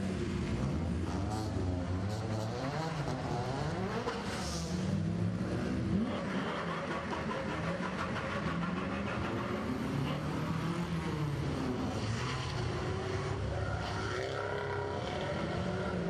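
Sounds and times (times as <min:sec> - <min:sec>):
small car engines passing: 0:00.0 - 0:16.0.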